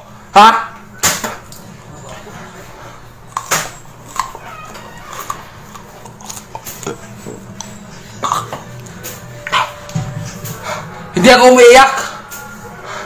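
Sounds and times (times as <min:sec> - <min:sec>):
crunchy vegetable biting: 0:03.3 - 0:08.8
wet mouth sounds: 0:05.1 - 0:09.8.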